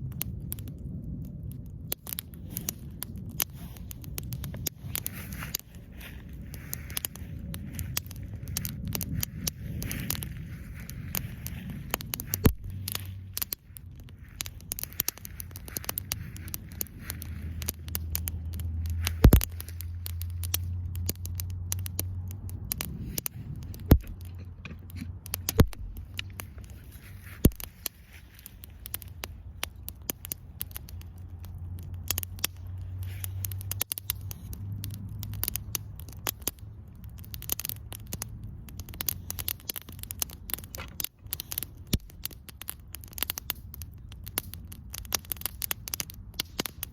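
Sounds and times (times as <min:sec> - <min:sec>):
campfire crackling and popping: 0:00.0 - 0:46.9
low rumble: 0:00.0 - 0:46.9.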